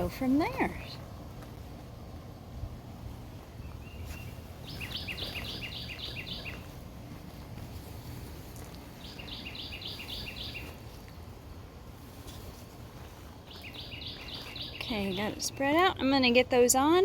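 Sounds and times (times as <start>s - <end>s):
low rumble of wind: 0.0s - 17.0s
songbird singing: 0.0s - 17.0s.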